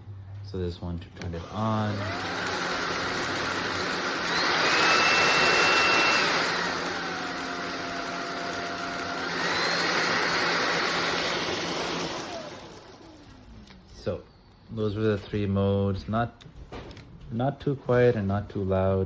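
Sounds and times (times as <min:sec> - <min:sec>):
stick vacuum motor whine: 0:01.2 - 0:14.1.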